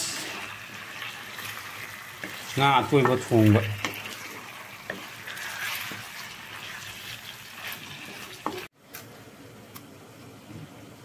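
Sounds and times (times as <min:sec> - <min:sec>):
food sizzling in a pan: 0:00.0 - 0:08.7.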